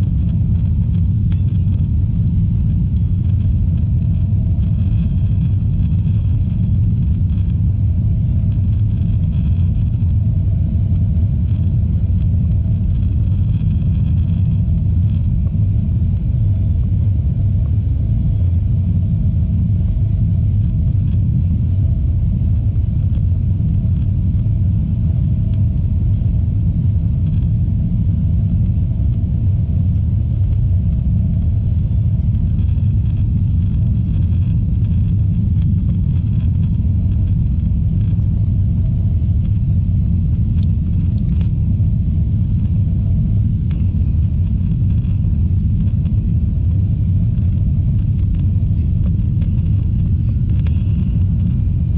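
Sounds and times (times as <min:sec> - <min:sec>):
airliner cabin rumble: 0:00.0 - 0:51.9.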